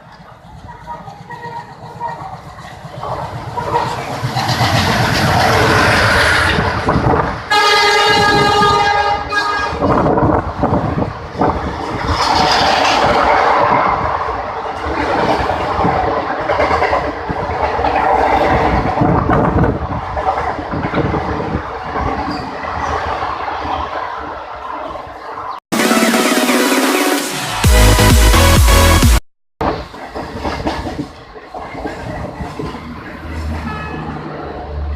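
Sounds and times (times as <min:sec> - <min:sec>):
train wheels clattering: 0:00.0 - 0:06.8
locomotive horn blast: 0:07.5 - 0:09.8.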